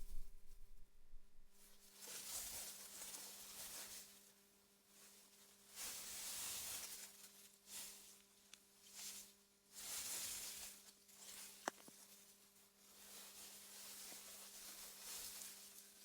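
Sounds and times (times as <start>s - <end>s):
faint steady hum: 0.0s - 1.8s.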